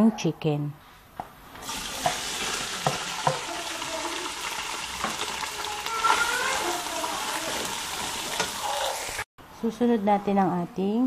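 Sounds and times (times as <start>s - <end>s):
chicken sizzling in hot oil: 1.6s - 9.3s.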